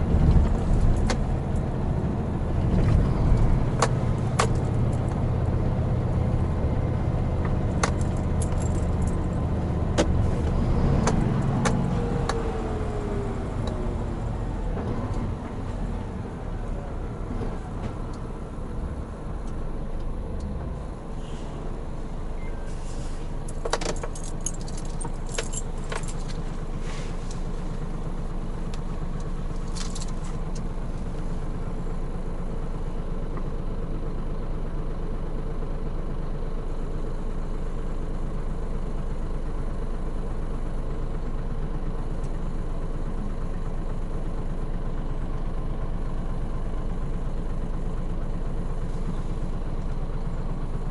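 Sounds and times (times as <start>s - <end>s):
truck diesel engine running: 0.0s - 50.9s.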